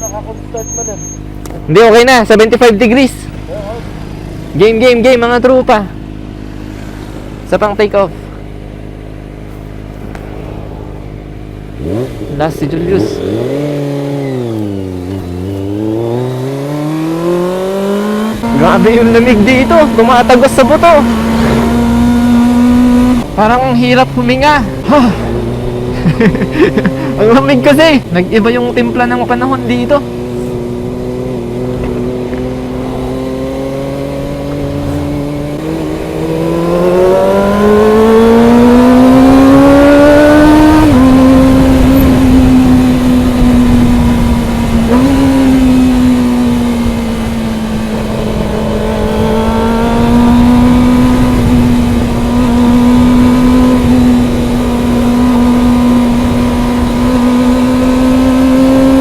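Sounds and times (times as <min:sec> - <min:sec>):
motorcycle engine revving high: 0:00.0 - 0:59.0
wind rushing: 0:10.2 - 0:12.4, 0:20.7 - 0:23.3.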